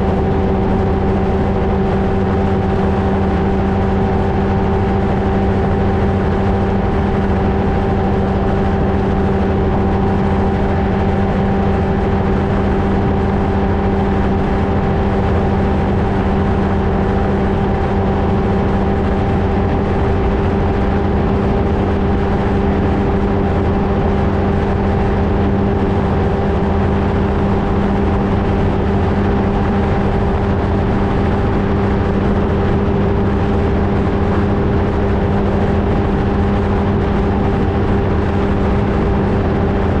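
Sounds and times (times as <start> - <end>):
ultralight engine and propeller: 0.0 - 40.0.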